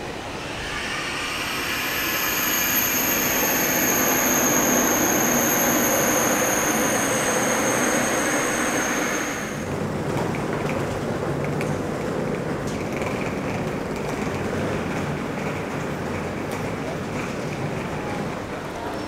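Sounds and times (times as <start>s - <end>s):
high-pitched whine: 0.0s - 9.8s
high-speed train passing: 0.0s - 12.6s.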